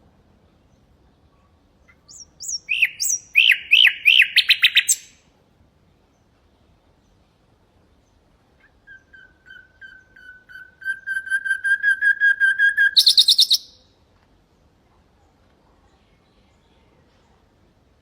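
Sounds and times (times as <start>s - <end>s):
nightingale singing: 1.8s - 5.2s, 8.0s - 13.9s.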